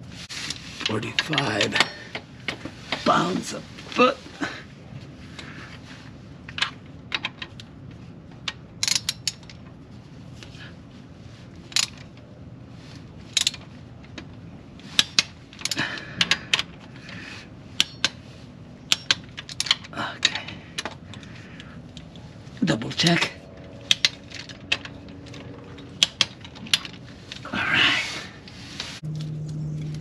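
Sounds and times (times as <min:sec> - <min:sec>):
wrench ratcheting: 0:17.7 - 0:18.2, 0:18.9 - 0:22.2, 0:23.6 - 0:27.4
tools clinking: 0:17.7 - 0:27.5.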